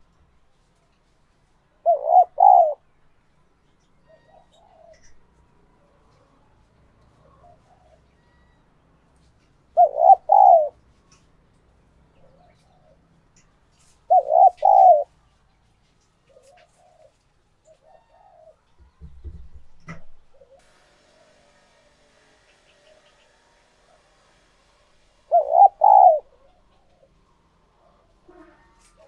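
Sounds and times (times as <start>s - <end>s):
dove cooing: 1.8s - 2.8s, 4.1s - 5.3s, 7.2s - 8.1s, 9.8s - 10.8s, 14.0s - 15.1s, 16.3s - 18.6s, 25.3s - 27.2s.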